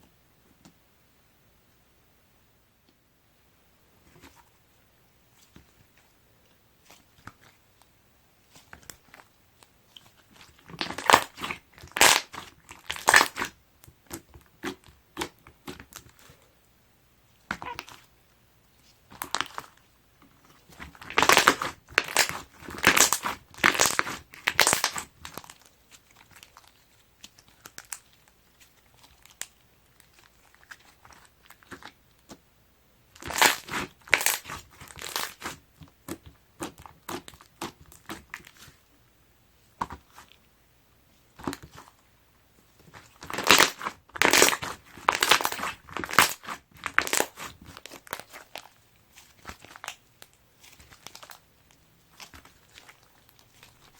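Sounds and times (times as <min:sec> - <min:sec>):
hands squishing slime: 0:05.3 - 0:07.8, 0:08.4 - 0:16.4, 0:17.3 - 0:18.1, 0:18.7 - 0:32.4, 0:33.1 - 0:38.9, 0:39.6 - 0:40.4, 0:41.1 - 0:42.0, 0:42.6 - 0:53.9
slime crackling and popping: 0:08.5 - 0:16.3, 0:19.0 - 0:32.3, 0:33.1 - 0:38.8, 0:42.8 - 0:53.9.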